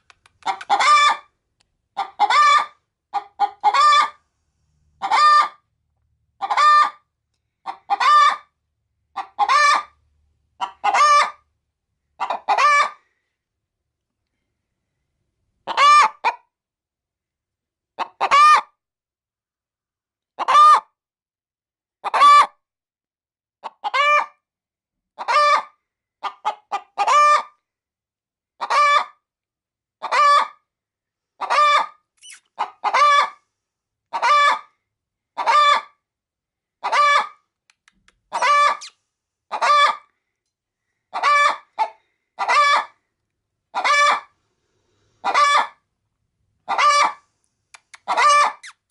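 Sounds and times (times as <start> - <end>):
hen calling: 38.3 - 38.9.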